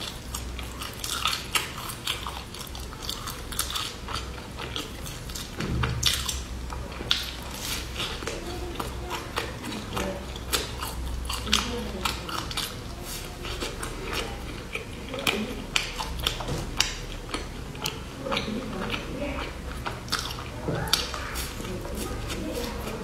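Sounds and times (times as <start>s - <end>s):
crunching and chewing crispy bar: 0.0s - 23.0s.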